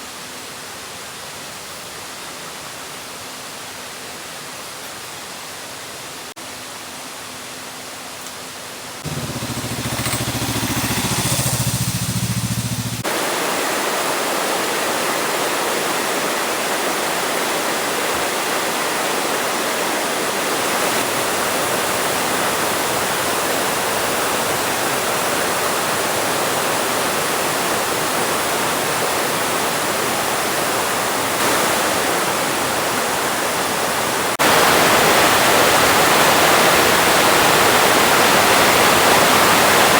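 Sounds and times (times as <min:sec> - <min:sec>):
waterfall roaring: 0:09.0 - 0:39.9.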